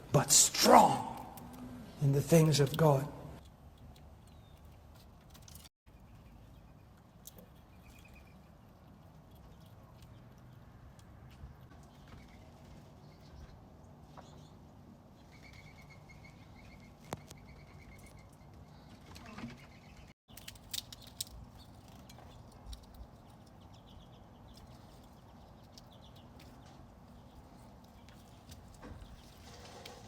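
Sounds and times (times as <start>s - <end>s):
small birds calling: 21.5s - 30.0s.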